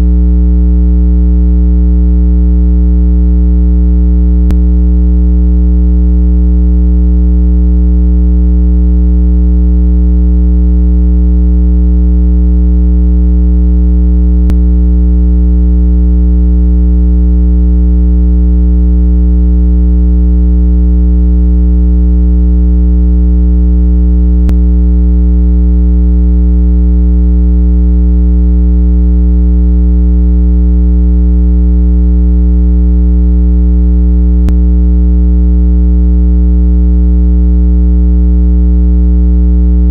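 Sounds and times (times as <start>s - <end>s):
low electronic hum: 0.0s - 1.0s, 4.2s - 6.5s, 14.2s - 16.2s, 24.2s - 25.2s, 34.4s - 34.8s.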